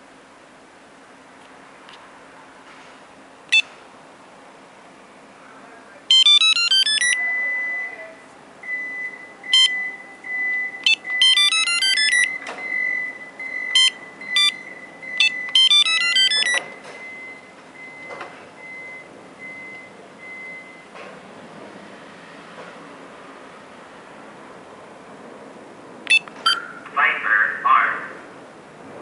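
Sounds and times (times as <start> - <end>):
electronic chirp tunes: 6.1 - 8.0, 9.0 - 16.6
short electronic beeps: 6.1 - 8.0, 8.6 - 20.9, 26.1 - 26.7
steady high tone: 6.1 - 12.4, 13.0 - 16.6
faint evenly spaced beeps: 6.1 - 20.9, 26.1 - 26.7.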